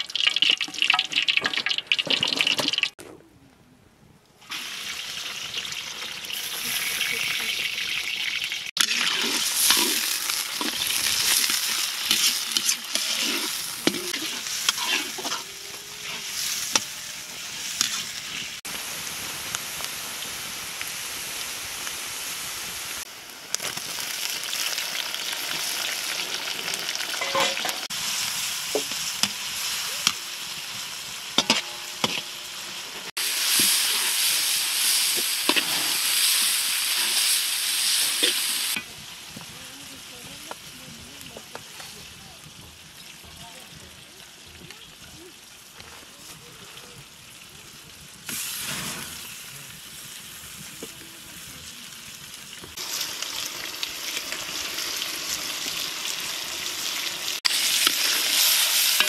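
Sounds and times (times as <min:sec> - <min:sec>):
vegetables sizzling in hot oil: 0:04.5 - 0:59.0
metal ladle scraping a wok: 0:08.8 - 0:18.6, 0:27.2 - 0:27.9, 0:31.4 - 0:32.4, 0:33.4 - 0:38.8.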